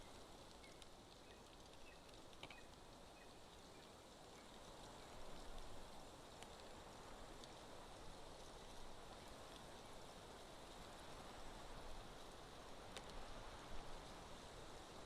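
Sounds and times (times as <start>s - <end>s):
faint ticks: 0.0s - 7.7s, 12.9s - 13.7s
faint outdoor hiss: 0.0s - 15.0s.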